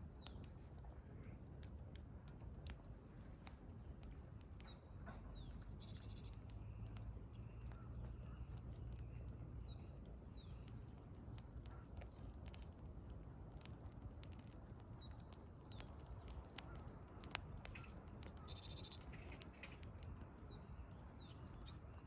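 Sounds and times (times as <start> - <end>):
campfire crackling and popping: 0.0 - 22.0
small birds chirping: 0.0 - 22.0.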